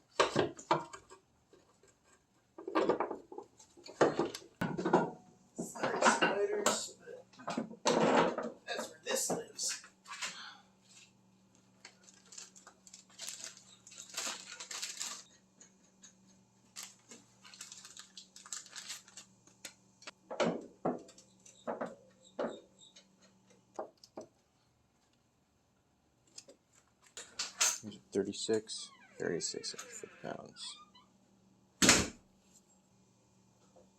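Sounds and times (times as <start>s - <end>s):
rummaging through tools: 11.9s - 15.3s, 16.8s - 19.3s.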